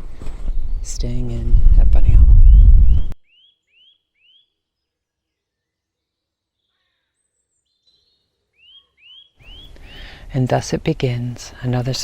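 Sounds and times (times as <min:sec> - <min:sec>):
faint bird chirps: 0:02.4 - 0:10.4.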